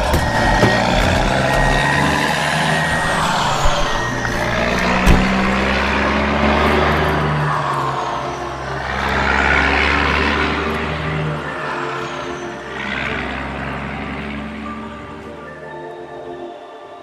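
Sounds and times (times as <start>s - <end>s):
hissing rush: 0.0s - 10.1s
truck engine droning: 0.0s - 16.9s.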